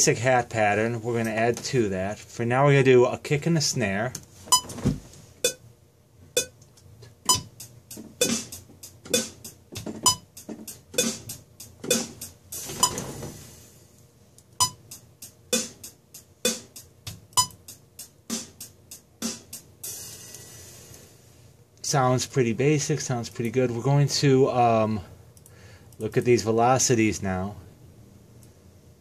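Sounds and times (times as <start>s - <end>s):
hi-hat: 7.2s - 14.0s, 14.6s - 21.6s
kick and snare drums: 7.3s - 13.5s, 14.6s - 20.3s.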